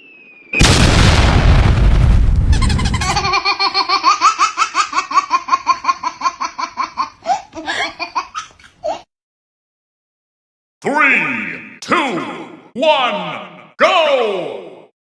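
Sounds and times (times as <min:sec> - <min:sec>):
loud boom: 0:00.5 - 0:03.4
rapid laughter: 0:02.6 - 0:08.1.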